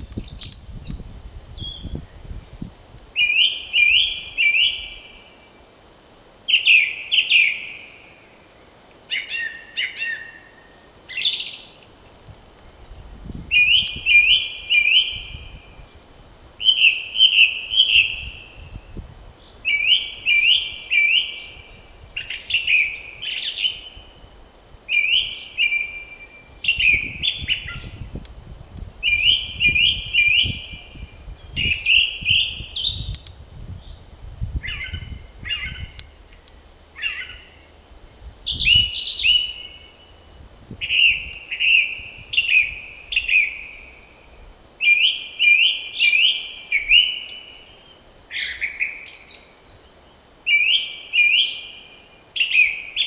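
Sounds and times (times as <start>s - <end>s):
wind rumble: 0.0s - 3.2s, 12.2s - 16.6s, 17.7s - 23.3s, 26.4s - 44.6s
songbird singing whistled notes: 0.0s - 8.4s, 9.0s - 16.0s, 16.6s - 53.0s
higher bird calls: 34.5s - 36.2s, 37.0s - 37.8s.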